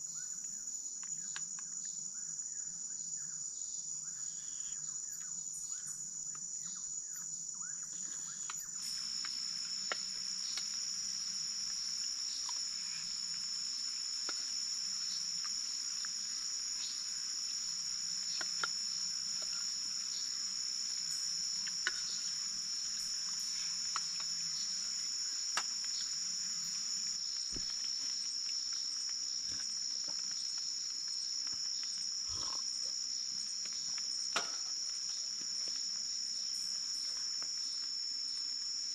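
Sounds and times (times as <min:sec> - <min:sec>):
forest insects trilling: 0:00.0 - 0:38.9
lower-pitched insect trill: 0:00.0 - 0:38.9
faint ticks: 0:08.2 - 0:38.9.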